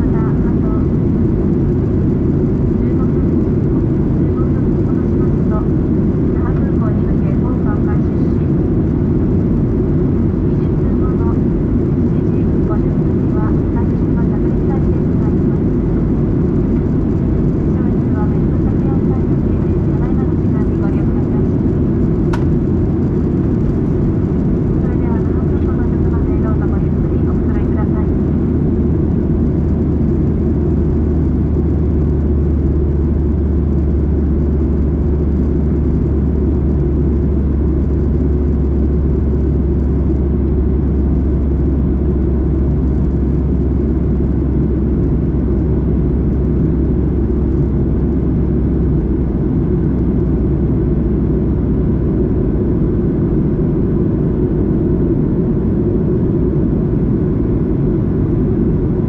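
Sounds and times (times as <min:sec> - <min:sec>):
airplane cabin engine rumble: 0:00.0 - 0:59.0
deep low hum: 0:00.0 - 0:59.0.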